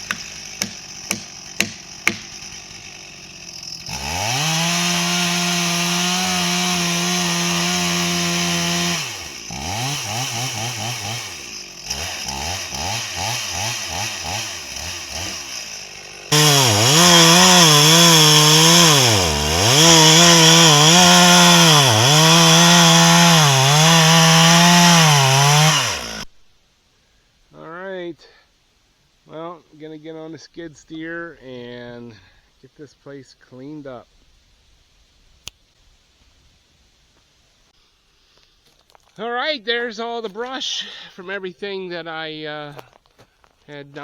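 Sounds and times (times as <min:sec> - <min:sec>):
chainsaw revving cutting wood: 0:00.0 - 0:26.3.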